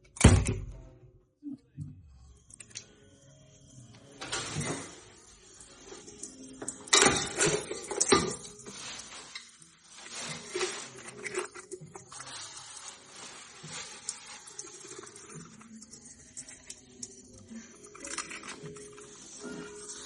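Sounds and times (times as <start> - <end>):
crabs scrabbling against a pot: 4.2 - 20.0.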